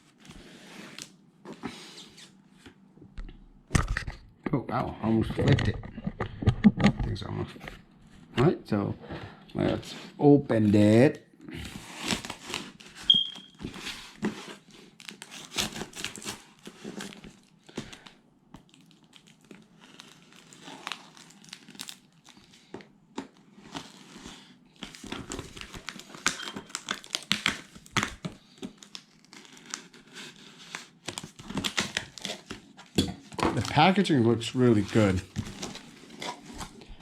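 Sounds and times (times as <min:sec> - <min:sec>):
packaging rustling and crinkling: 0:11.6 - 0:37.0.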